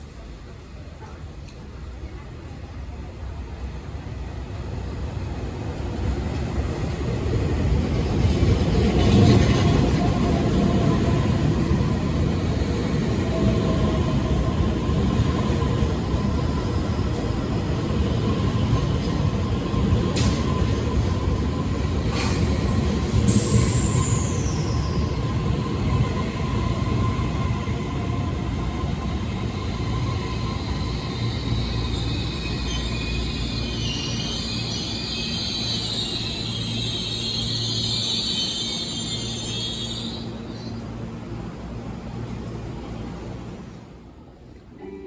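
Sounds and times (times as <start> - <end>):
train wheels rumbling: 4.8 - 43.9.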